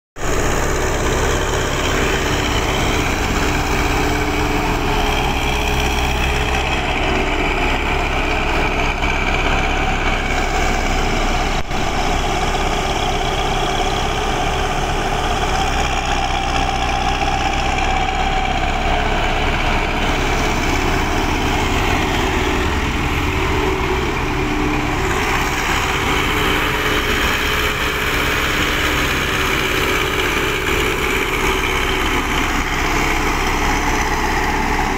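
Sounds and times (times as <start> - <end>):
dump truck diesel engine running: 0.2 - 34.9
hydraulic whine: 0.2 - 34.9.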